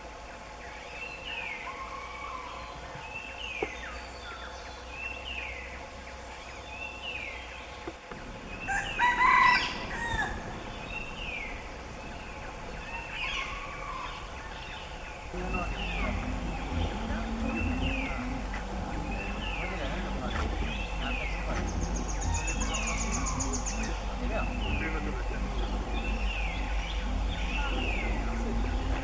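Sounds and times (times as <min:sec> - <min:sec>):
harsh bird call: 0:08.4 - 0:29.0.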